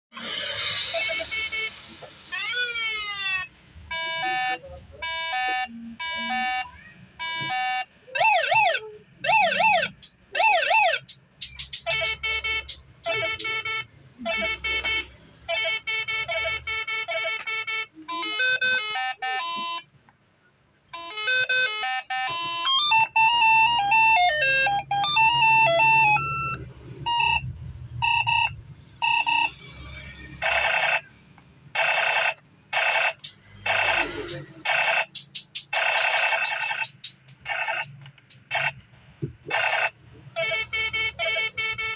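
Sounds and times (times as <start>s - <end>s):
toy sound chip beeping tunes: 0.2s - 19.9s, 20.9s - 31.1s, 31.8s - 38.8s, 39.5s - 41.9s.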